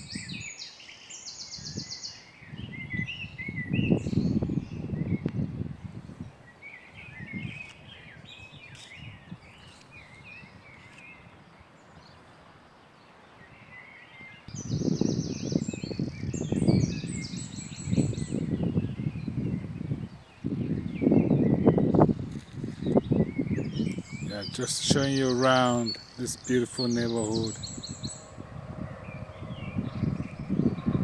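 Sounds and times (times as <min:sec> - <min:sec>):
small birds chirping: 0:00.0 - 0:31.0
uneven low rumbling: 0:23.4 - 0:31.0.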